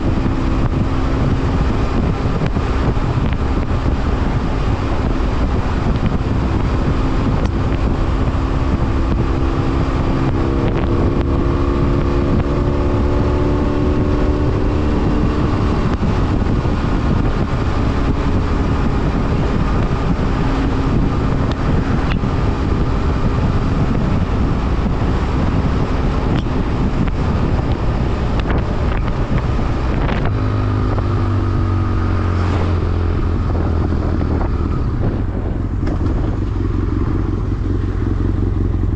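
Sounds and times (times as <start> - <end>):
motorcycle engine running: 0.0 - 38.9
wind rush over microphone: 0.0 - 38.9.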